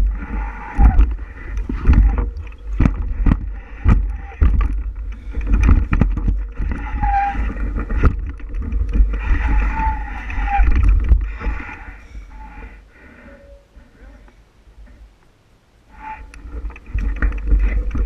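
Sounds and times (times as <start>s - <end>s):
bike rattling and knocking: 0.0s - 12.0s, 16.4s - 18.0s
wind rumbling on microphone: 0.0s - 15.2s, 15.8s - 18.0s.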